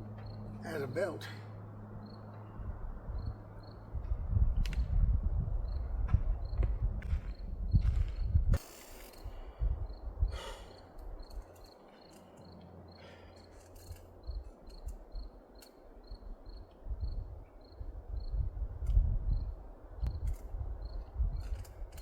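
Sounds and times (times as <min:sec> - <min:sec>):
cricket chirping: 0:00.0 - 0:01.1, 0:02.0 - 0:03.9, 0:05.6 - 0:18.5, 0:19.3 - 0:22.0
person breathing: 0:09.2 - 0:11.0, 0:12.9 - 0:13.6.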